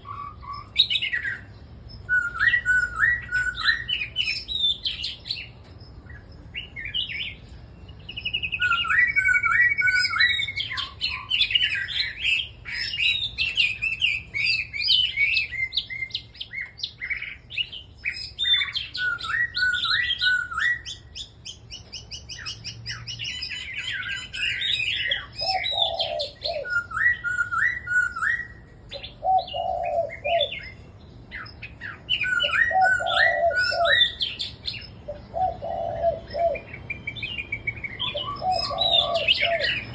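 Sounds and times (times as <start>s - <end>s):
birds singing: 0.0s - 39.9s
lower bird call: 6.2s - 39.9s.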